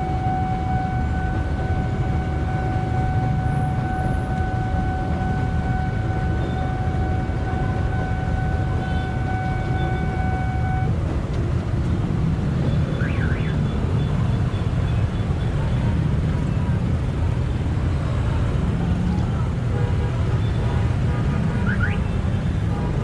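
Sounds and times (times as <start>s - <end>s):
traffic engines rumbling: 0.0s - 23.0s.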